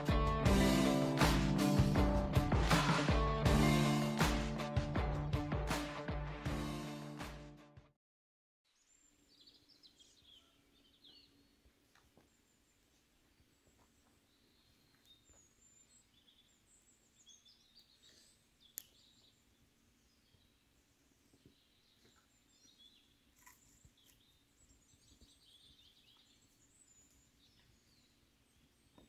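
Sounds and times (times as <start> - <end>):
birdsong chirps and trills: 8.7 - 29.0.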